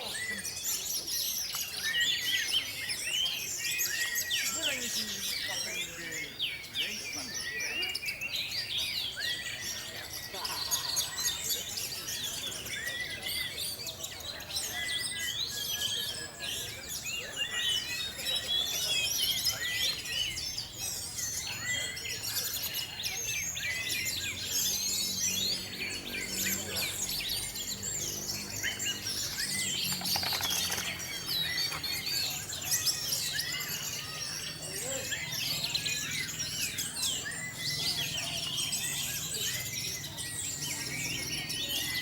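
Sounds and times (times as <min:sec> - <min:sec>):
chorus of songbirds: 0:00.0 - 0:42.0.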